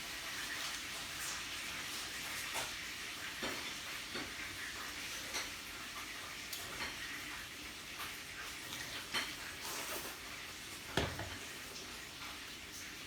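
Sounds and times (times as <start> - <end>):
meat sizzling on a grill: 0.0 - 13.0.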